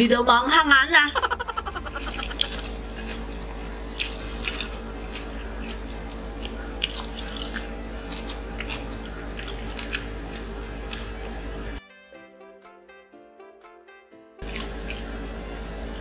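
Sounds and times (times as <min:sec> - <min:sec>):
people chewing with mouth smacks: 0:01.5 - 0:11.7, 0:14.4 - 0:16.0.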